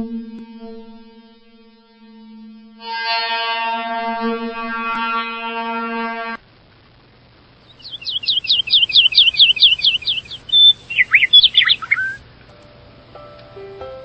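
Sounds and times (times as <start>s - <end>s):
low hum: 0.0s - 12.5s
horn-like tone: 0.1s - 6.4s
bird chirping and whistling: 7.7s - 12.2s.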